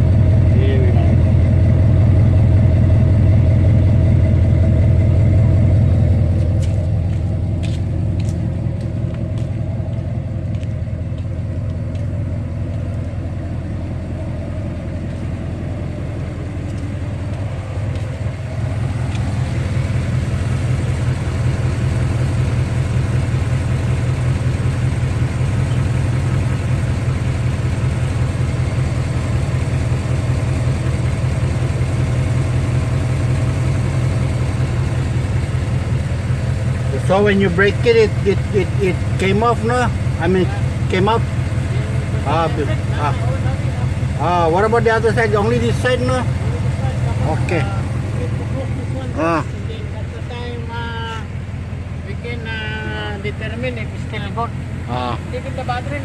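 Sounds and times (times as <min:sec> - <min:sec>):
truck engine rumbling: 0:00.0 - 0:56.0.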